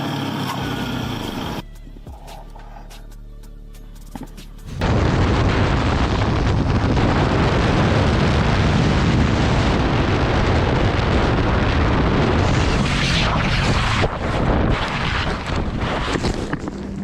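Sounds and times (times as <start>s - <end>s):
wind buffeting microphone: 4.7s - 17.0s.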